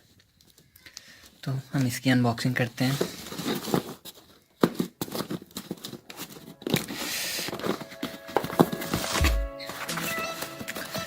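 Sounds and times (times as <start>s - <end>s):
background music: 6.2s - 11.0s.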